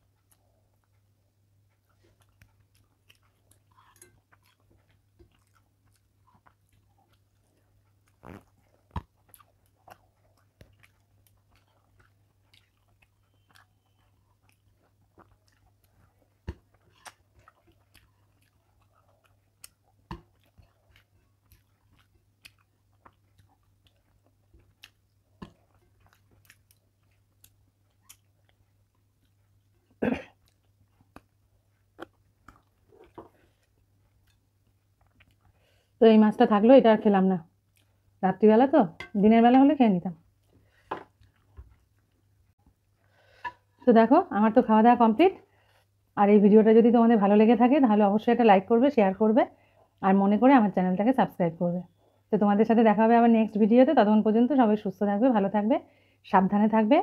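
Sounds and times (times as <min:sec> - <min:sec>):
person chewing: 0:00.0 - 0:36.0, 0:37.6 - 0:38.2, 0:40.2 - 0:43.8
faint low hum: 0:00.0 - 0:57.0.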